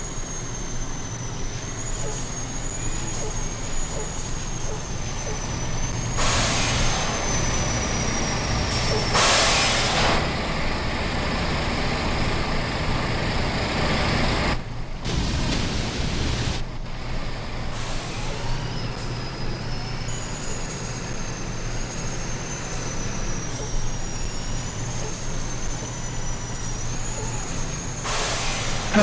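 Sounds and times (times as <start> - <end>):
truck engine running: 0.0 - 18.4, 27.2 - 29.0.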